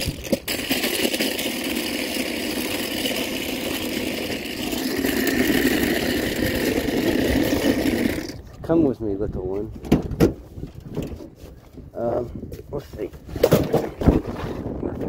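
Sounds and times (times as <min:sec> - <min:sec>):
vehicle engine and road noise: 0:01.7 - 0:13.4.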